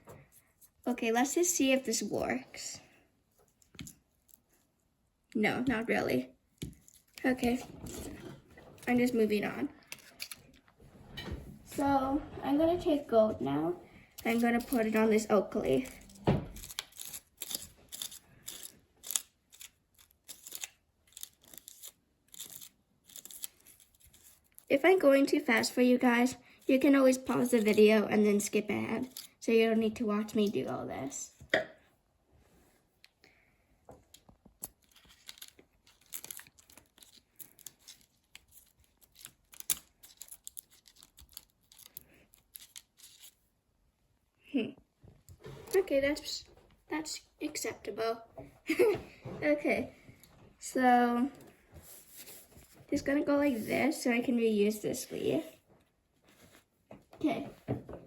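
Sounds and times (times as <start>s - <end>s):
paper rustling and crinkling: 34.4s - 43.4s, 55.1s - 58.0s.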